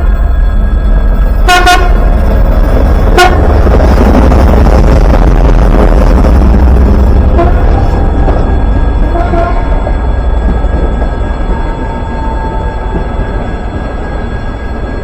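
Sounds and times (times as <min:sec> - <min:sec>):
train passing rumble: 0:00.0 - 0:15.0
train horn blasts: 0:01.4 - 0:02.1, 0:03.1 - 0:03.6, 0:07.3 - 0:07.8, 0:09.1 - 0:10.0.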